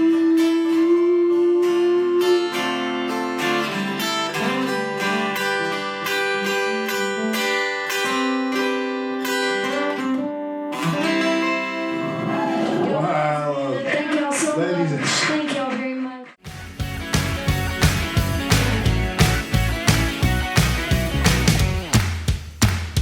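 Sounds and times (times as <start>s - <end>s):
acoustic guitar strumming: 0.0s - 12.8s, 16.4s - 22.0s.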